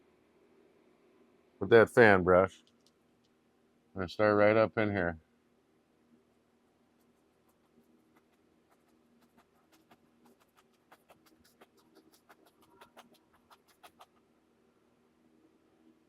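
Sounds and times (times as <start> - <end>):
brush tapping on canvas: 7.5 - 14.2.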